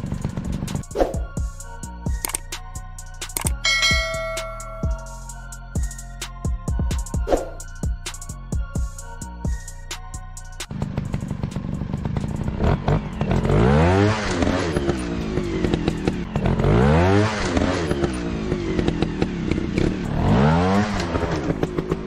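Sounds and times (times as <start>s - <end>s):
dirt bike engine revving: 10.7s - 22.0s.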